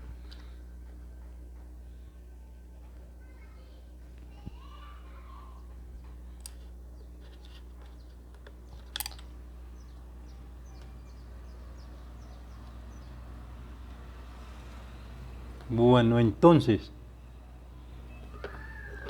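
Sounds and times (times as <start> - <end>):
steady low hum: 0.0 - 19.0
small plastic parts clicking: 6.4 - 9.3.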